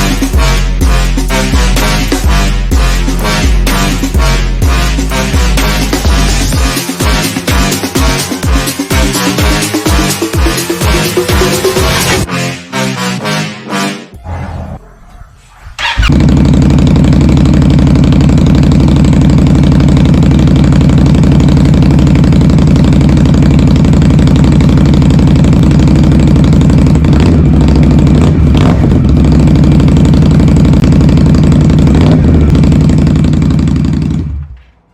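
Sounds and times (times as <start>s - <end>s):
motorcycle engine idling: 15.8s - 34.9s.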